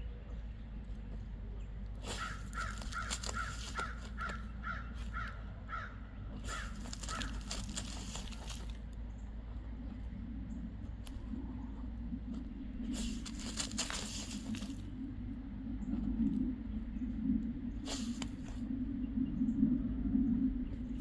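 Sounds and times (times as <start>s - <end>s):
dog digging in dirt: 0.9s - 18.7s
crow cawing: 2.1s - 7.7s.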